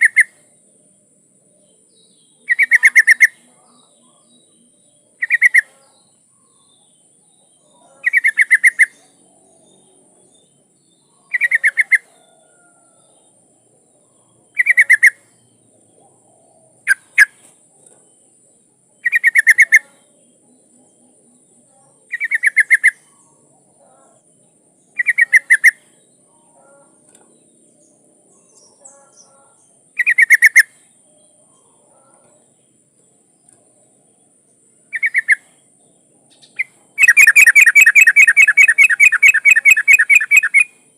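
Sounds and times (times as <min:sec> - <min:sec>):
bulbul chattering call: 0:00.0 - 0:00.6, 0:01.6 - 0:07.0, 0:07.7 - 0:09.8, 0:11.1 - 0:12.7, 0:14.1 - 0:15.4, 0:16.8 - 0:17.5, 0:19.0 - 0:21.0, 0:22.0 - 0:24.3, 0:24.9 - 0:27.2, 0:28.5 - 0:30.8, 0:34.9 - 0:35.6, 0:36.3 - 0:40.9.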